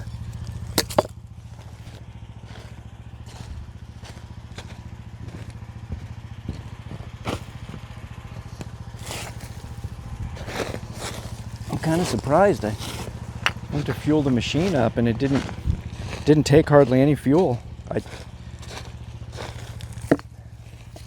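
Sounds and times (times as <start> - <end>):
metal clanks and knocks: 0.0 - 1.2, 19.9 - 20.3
excavator engine idling: 0.0 - 21.0.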